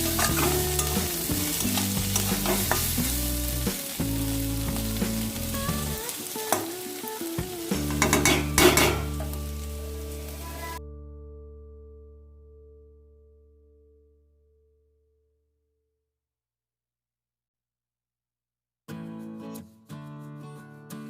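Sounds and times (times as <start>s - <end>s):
vegetables sizzling in pan: 0.0s - 10.8s
background music: 0.0s - 12.8s
spatula clicking against pan: 8.0s - 9.1s.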